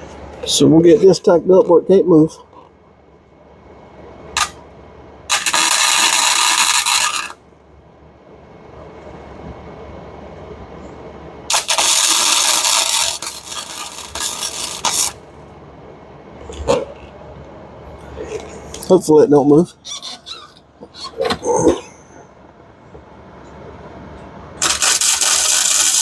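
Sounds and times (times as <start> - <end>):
electric welder arc crackling: 5.3 - 7.4, 11.5 - 15.2, 24.6 - 26.0.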